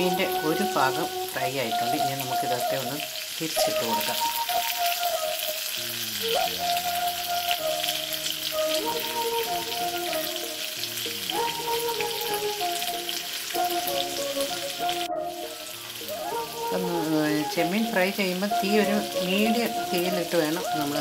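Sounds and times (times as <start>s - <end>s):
prawns sizzling in a pan: 0.0s - 21.0s
slow instrumental music: 0.0s - 21.0s.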